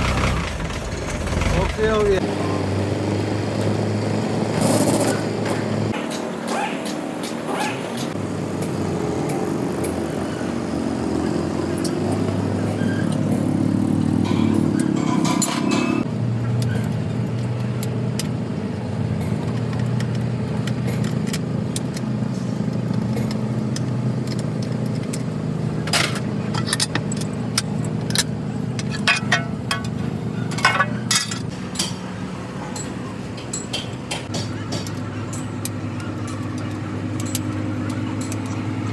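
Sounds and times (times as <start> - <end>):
engine running: 0.0 - 38.9
light metallic clinks: 19.2 - 38.9.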